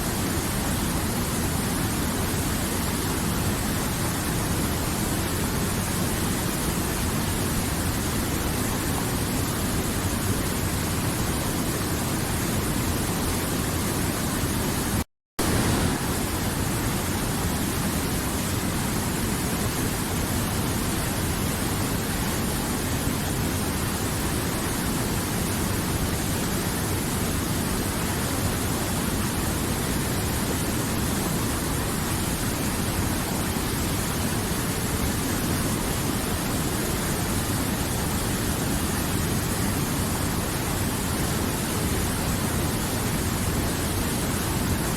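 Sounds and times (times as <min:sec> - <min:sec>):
river water rushing: 0:15.4 - 0:44.9.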